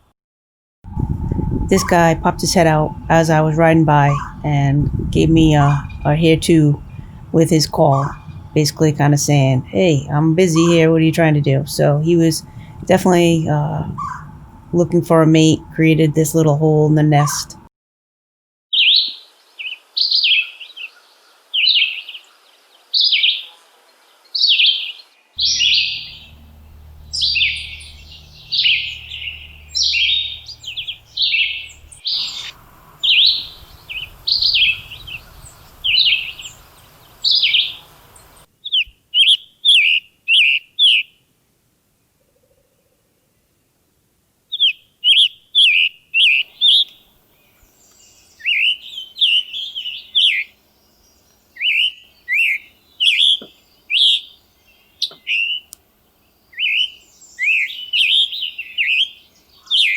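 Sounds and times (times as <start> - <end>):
bird calling: 0.9 - 17.6, 25.4 - 38.4.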